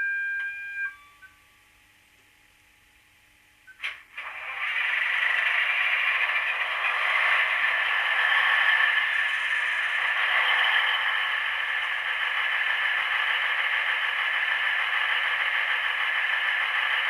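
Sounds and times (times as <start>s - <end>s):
diesel engine sound through small speaker: 3.8s - 17.0s.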